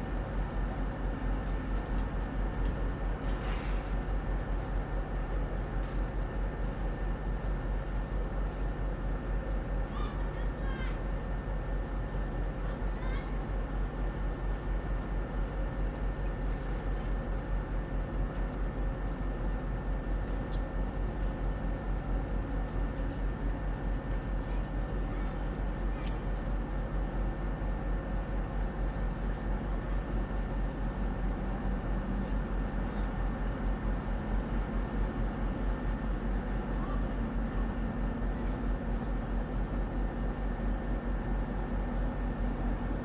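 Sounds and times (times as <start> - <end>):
train mechanical drone: 20.8 - 43.0.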